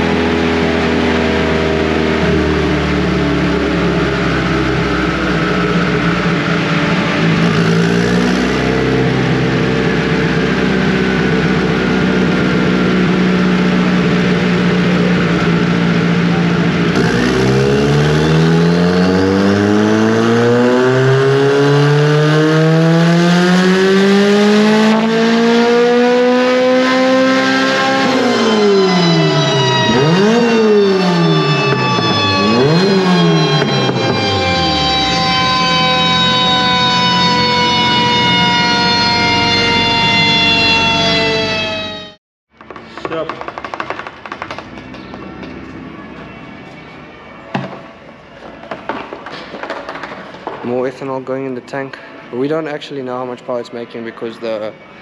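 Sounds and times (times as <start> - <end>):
turbocharged car engine revving: 0.0 - 42.2.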